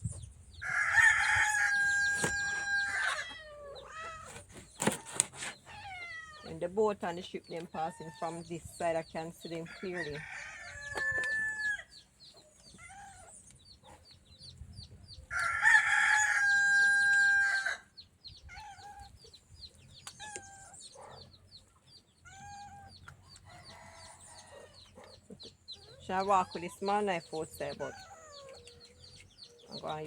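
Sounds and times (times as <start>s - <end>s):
rooster crowing: 0.6s - 3.4s, 9.8s - 11.9s, 15.3s - 17.8s.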